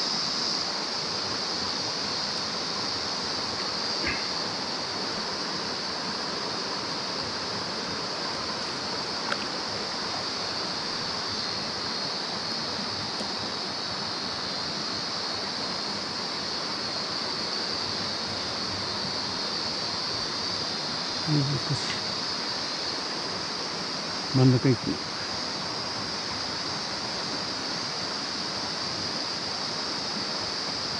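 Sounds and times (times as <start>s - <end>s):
stream flowing over rocks: 0.0s - 30.9s.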